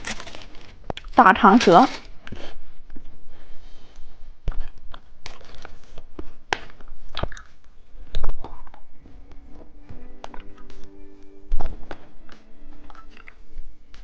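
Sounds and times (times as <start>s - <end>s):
plastic packaging crinkling and tearing: 0.0s - 3.1s, 4.5s - 8.9s.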